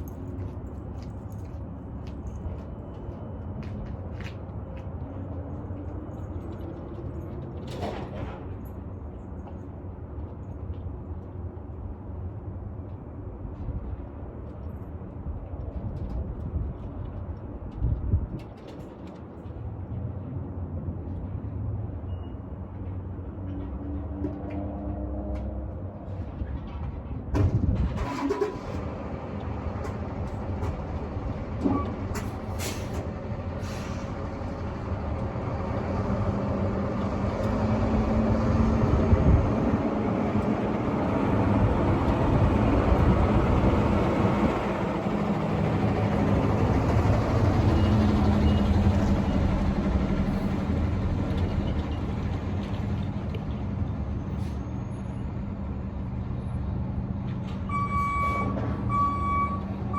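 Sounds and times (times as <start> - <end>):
reversing beeper beeping: 57.7 - 59.9.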